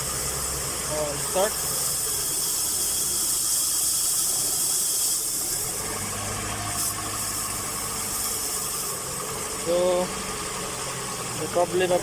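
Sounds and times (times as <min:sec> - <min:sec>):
strong hiss: 0:00.0 - 0:05.9
car engine running: 0:05.3 - 0:12.0.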